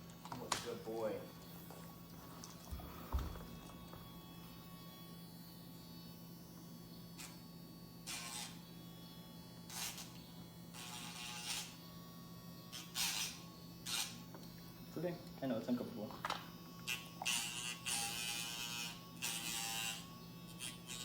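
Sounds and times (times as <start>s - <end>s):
electric nail grinder buzzing: 0.0s - 21.0s.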